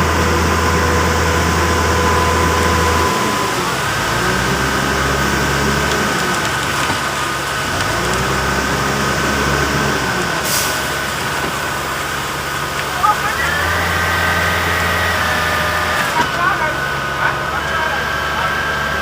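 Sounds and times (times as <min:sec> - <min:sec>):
high whine: 0:00.0 - 0:05.2
diesel truck engine running: 0:00.0 - 0:19.0.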